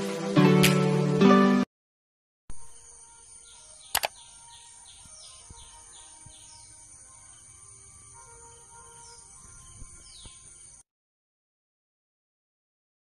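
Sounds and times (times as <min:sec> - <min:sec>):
bird chirping: 0:02.5 - 0:10.8
sharp clicks: 0:03.9 - 0:04.2.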